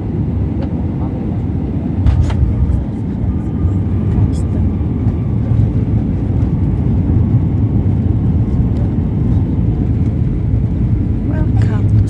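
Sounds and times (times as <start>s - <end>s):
jet airliner cabin rumble: 0.0s - 12.0s.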